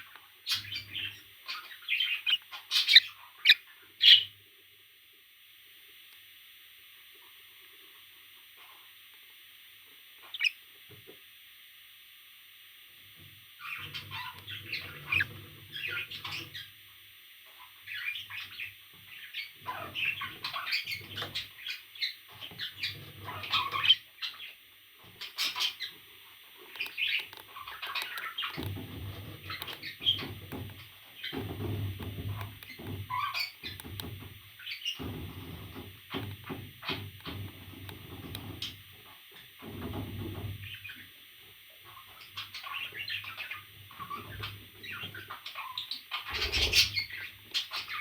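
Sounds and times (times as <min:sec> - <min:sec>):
parrot chirping and squawking: 0:00.5 - 0:04.3, 0:10.2 - 0:10.6, 0:13.6 - 0:16.7, 0:19.3 - 0:24.5, 0:25.2 - 0:26.0, 0:26.8 - 0:30.4, 0:32.3 - 0:33.8.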